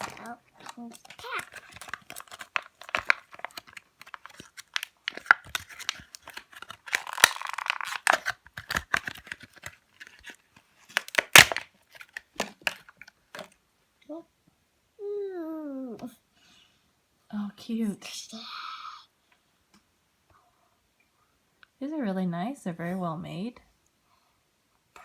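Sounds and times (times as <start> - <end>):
tearing rustle: 0.0 - 13.5
plastic packaging crackling: 0.0 - 13.6
loud plastic snap: 11.0 - 11.7.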